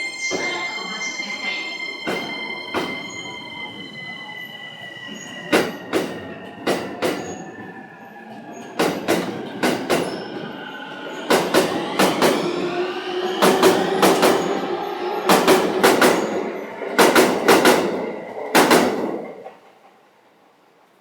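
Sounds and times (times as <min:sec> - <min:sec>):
train wheels clacking on rail joint: 0:02.0 - 0:03.3, 0:05.1 - 0:10.5, 0:13.4 - 0:14.6, 0:15.2 - 0:20.0.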